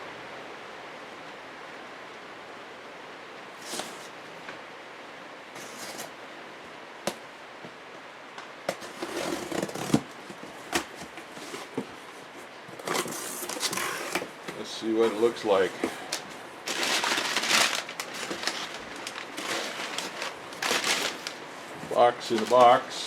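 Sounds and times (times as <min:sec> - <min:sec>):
cardboard scraping and rustling: 0:03.6 - 0:04.2, 0:05.6 - 0:06.2, 0:08.7 - 0:22.9.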